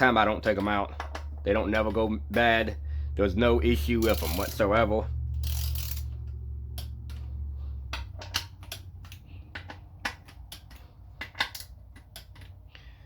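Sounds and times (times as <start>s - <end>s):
low steady hum: 0.0s - 13.0s
metal parts and tools clicking: 3.8s - 12.8s.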